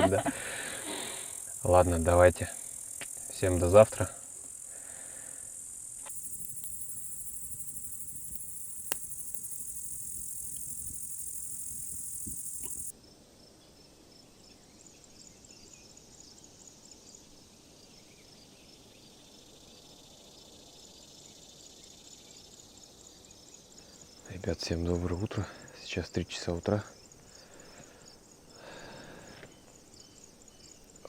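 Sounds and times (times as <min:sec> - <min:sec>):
crickets chirring: 0:00.0 - 0:12.9, 0:18.7 - 0:31.0
faint high chirps: 0:06.1 - 0:12.9
sharp click: 0:08.1 - 0:10.7.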